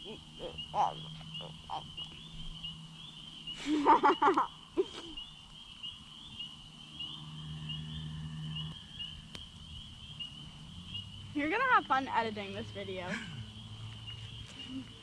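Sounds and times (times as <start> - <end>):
low pulsing frog croaks: 0.0 - 3.5
frogs calling in chorus: 0.0 - 15.0.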